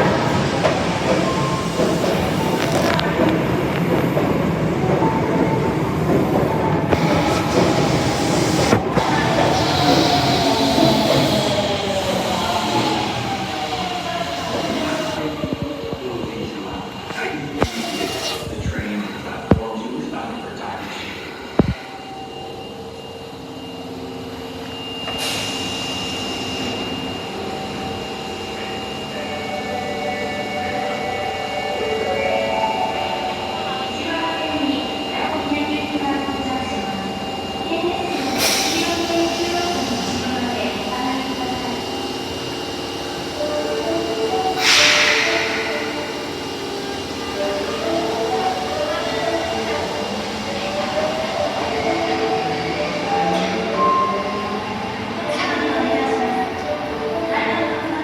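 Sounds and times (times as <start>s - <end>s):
subway train wheels rumbling: 0.0s - 58.0s
sharp hiss of air: 44.6s - 46.5s.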